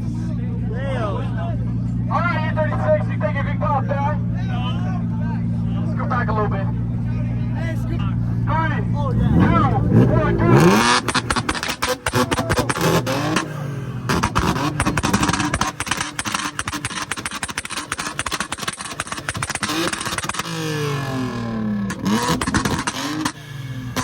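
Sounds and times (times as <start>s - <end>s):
car engine revving: 1.5s - 24.0s
exhaust pops and bangs: 9.5s - 24.0s.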